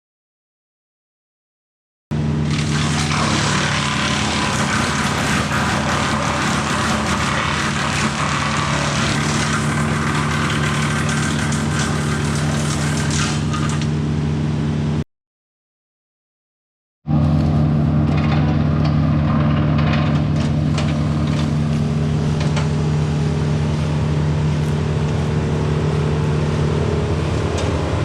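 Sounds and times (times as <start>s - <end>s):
wood chipper hiss: 2.3s - 14.1s
tractor diesel engine running: 17.1s - 28.0s.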